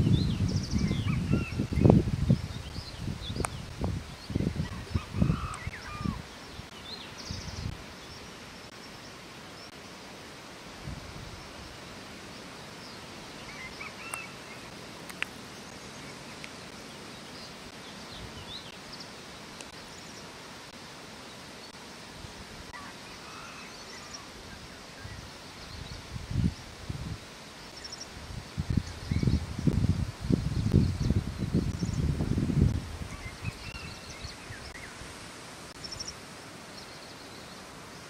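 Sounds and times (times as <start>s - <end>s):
steady outdoor hiss: 0.0s - 38.0s
faint bird chirps: 11.4s - 14.7s.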